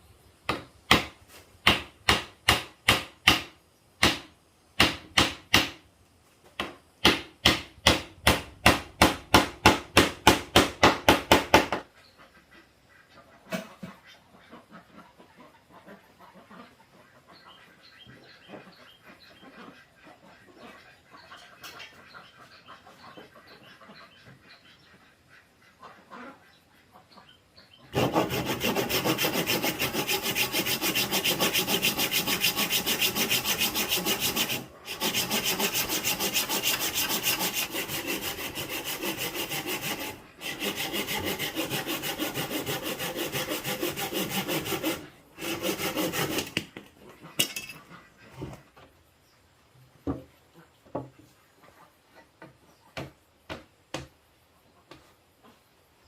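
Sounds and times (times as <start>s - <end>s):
wood being sawn: 28.0s - 46.7s.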